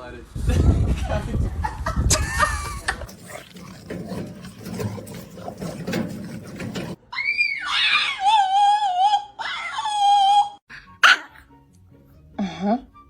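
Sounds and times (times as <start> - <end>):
dog noises: 2.6 - 7.0.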